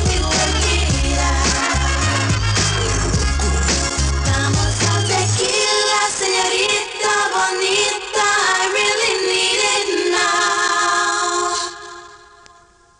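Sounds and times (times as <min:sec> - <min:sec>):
bass and drums: 0:00.0 - 0:05.4
synthesizer chords: 0:00.0 - 0:12.5.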